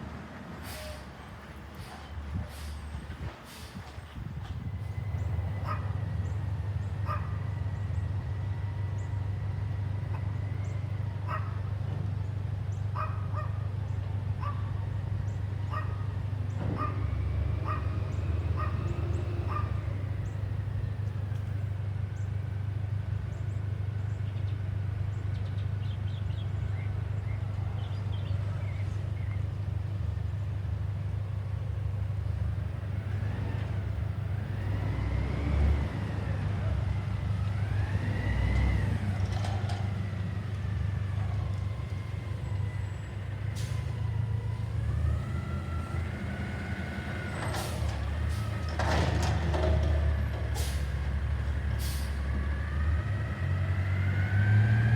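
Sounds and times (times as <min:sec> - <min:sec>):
garbage truck engine rumble: 0:00.0 - 0:54.9.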